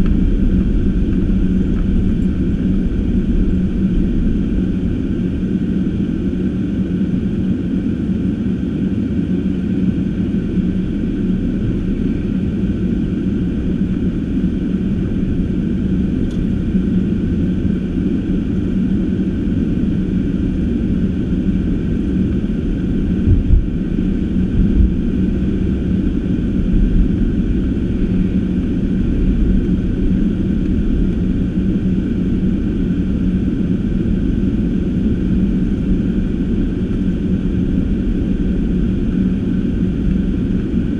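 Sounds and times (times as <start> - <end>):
car engine and road rumble: 0.0 - 40.9
heavy low thumps: 23.2 - 25.2.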